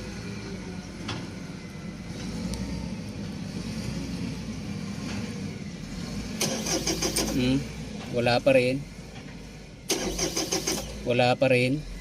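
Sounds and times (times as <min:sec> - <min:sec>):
starter motor cranking engine: 0:06.4 - 0:07.6, 0:09.9 - 0:11.2.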